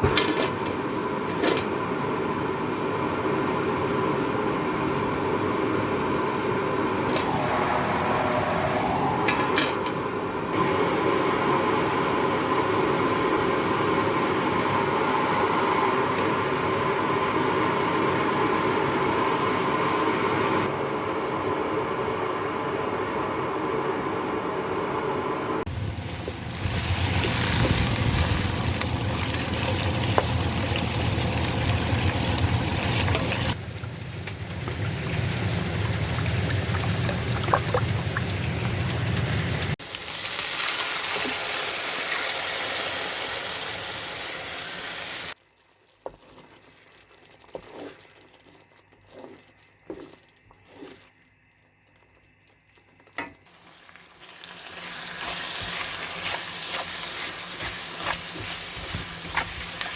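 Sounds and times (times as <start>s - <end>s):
frying sizzle: 25.7s - 51.2s, 51.9s - 59.9s.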